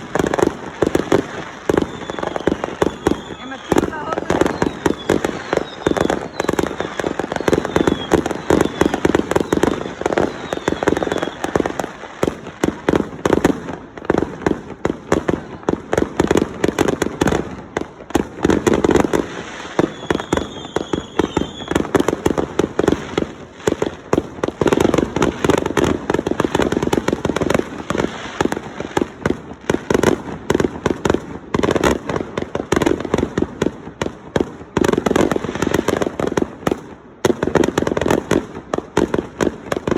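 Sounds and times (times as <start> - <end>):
fireworks bangs and crackles: 0.0 - 39.9
firework high whistle: 1.2 - 12.0, 19.1 - 23.3.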